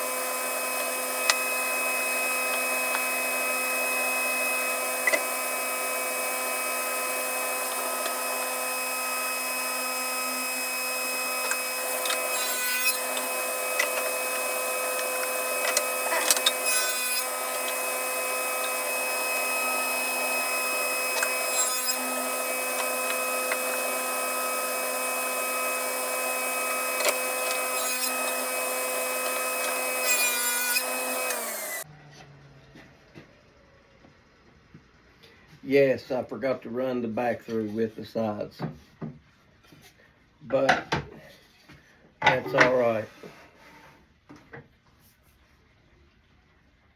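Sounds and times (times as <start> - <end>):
saw blade winding down: 0.0 - 31.9
saw cutting into wood: 0.0 - 31.9
table saw whining: 0.0 - 32.8.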